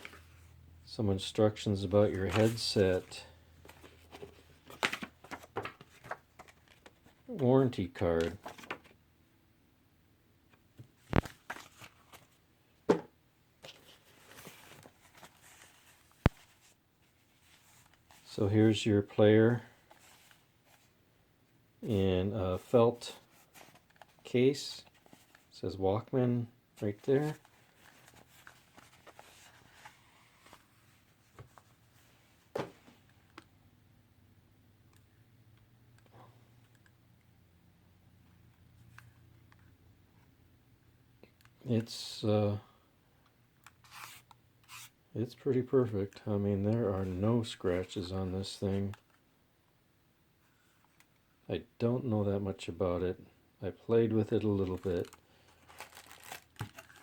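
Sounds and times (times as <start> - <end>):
soft packaging rustling: 1.7 - 9.0, 10.6 - 12.5, 13.6 - 18.5, 19.6 - 21.0, 22.6 - 25.6, 26.7 - 33.6, 43.6 - 49.3, 50.4 - 51.4, 54.0 - 57.0
packaging clicks and knocks: 55.0 - 57.0.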